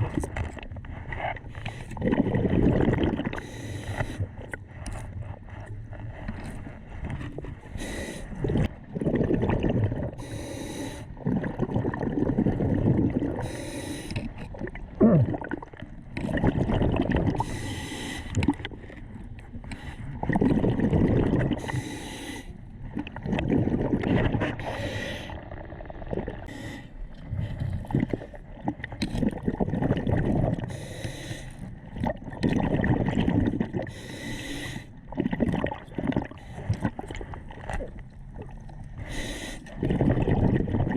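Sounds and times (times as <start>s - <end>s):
diver breathing heavily: 3.4s - 4.4s, 5.2s - 8.5s, 10.1s - 11.2s, 13.4s - 14.4s, 17.3s - 18.8s, 21.5s - 22.6s, 24.4s - 25.5s, 26.4s - 28.4s, 30.6s - 31.7s, 33.8s - 35.0s, 39.0s - 39.8s.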